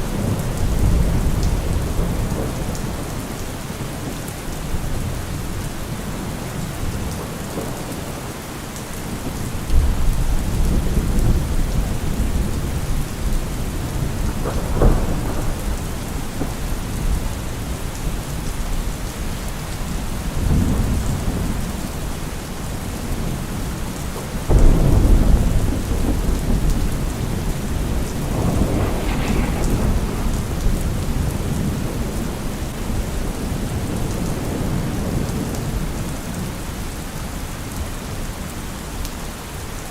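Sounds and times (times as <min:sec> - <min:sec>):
heavy rain falling: 0:00.0 - 0:39.9
low rumbling swells: 0:27.2 - 0:32.8.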